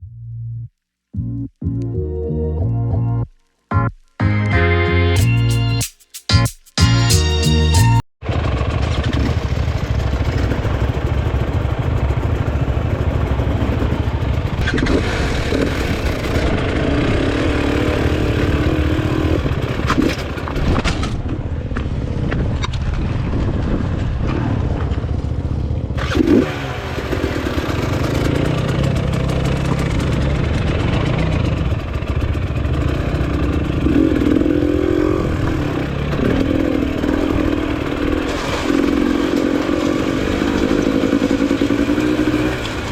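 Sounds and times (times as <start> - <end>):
motorcycle engine revving: 8.2 - 22.2, 24.2 - 42.9.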